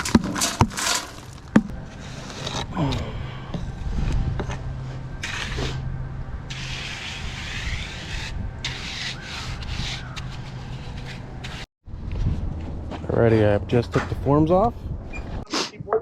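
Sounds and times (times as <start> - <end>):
scraping on masonry: 0.0 - 2.9, 3.6 - 5.9, 6.5 - 11.7
steady low hum: 1.4 - 9.8.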